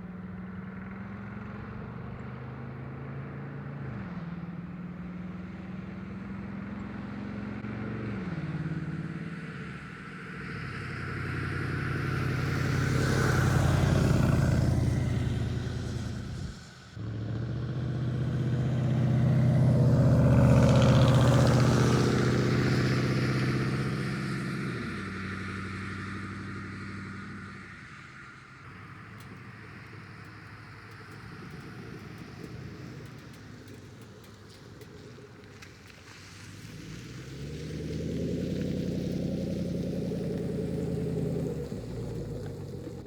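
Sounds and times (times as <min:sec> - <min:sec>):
loud truck engine exhaust: 0:10.5 - 0:27.8, 0:36.6 - 0:43.0.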